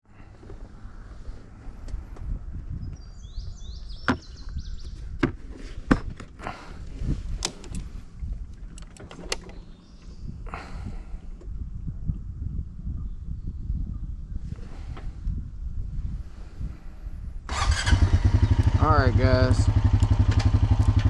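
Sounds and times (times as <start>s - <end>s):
off-road machine rumbling: 0.0s - 12.1s, 16.0s - 21.0s
bird chirping: 2.8s - 5.1s, 9.3s - 11.0s.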